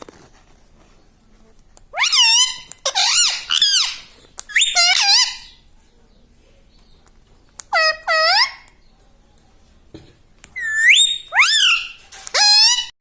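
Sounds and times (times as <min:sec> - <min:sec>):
parrot squeaky two-part calls: 0:01.9 - 0:05.6, 0:07.7 - 0:08.7, 0:10.6 - 0:13.0.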